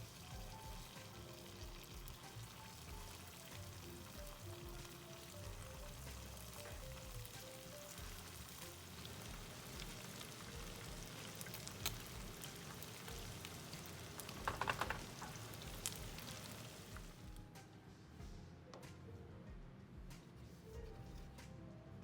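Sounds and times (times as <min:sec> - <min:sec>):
oil sizzling and crackling: 0:00.0 - 0:17.4
rattle: 0:14.2 - 0:15.4.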